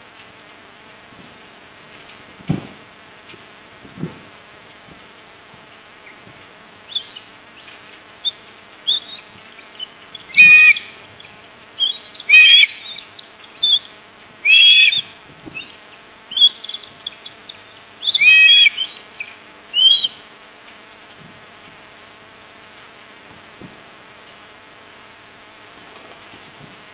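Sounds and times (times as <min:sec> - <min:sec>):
faint steady buzz: 0:00.0 - 0:26.9
fuller bird calls: 0:05.9 - 0:20.4
short high bird chirps: 0:06.9 - 0:07.3, 0:08.2 - 0:20.2.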